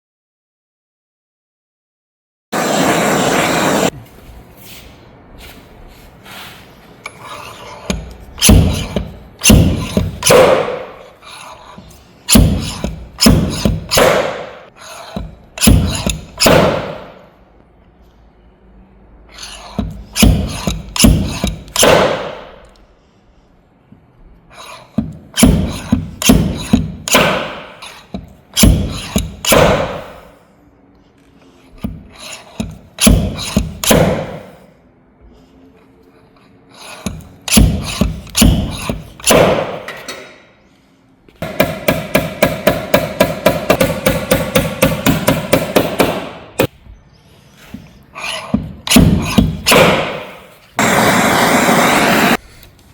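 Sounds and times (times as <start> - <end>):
loud rush of noise: 50.8 - 52.4.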